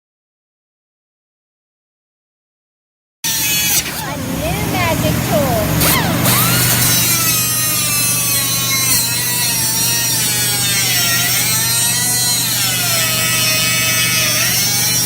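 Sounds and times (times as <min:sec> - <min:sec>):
oscillating multi-tool whining: 0:03.3 - 0:15.0.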